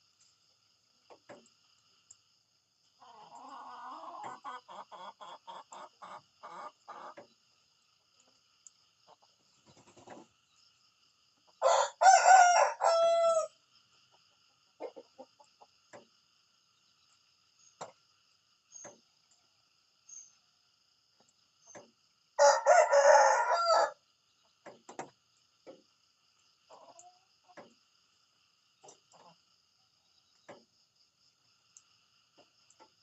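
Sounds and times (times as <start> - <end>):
rooster crowing: 11.6 - 13.6, 22.4 - 24.0.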